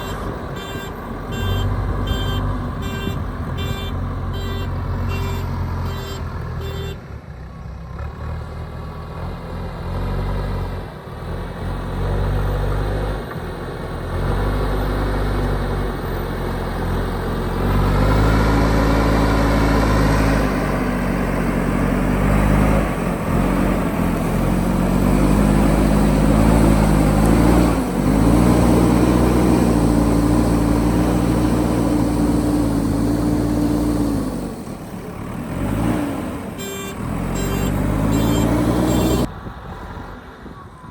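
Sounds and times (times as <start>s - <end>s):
beeps: 0.0s - 7.0s, 36.6s - 39.3s
heavy diesel engine revving: 0.0s - 40.1s.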